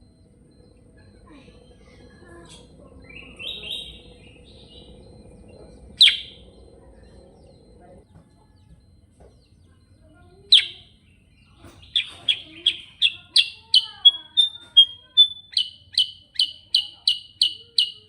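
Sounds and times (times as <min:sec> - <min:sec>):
bulbul chattering: 0:00.0 - 0:18.0.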